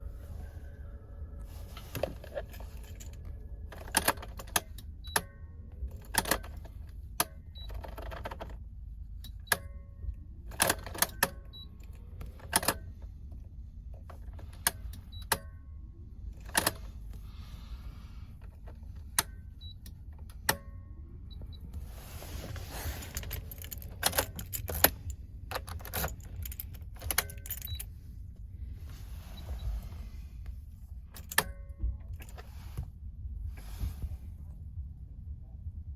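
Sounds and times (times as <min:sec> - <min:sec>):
car keys jangling: 0:01.5 - 0:08.6, 0:22.5 - 0:28.0, 0:31.1 - 0:32.4
ignition key clicking: 0:02.0 - 0:08.6, 0:09.2 - 0:09.8, 0:10.5 - 0:13.1, 0:16.4 - 0:17.0, 0:18.4 - 0:20.8, 0:23.1 - 0:27.9, 0:31.1 - 0:32.4.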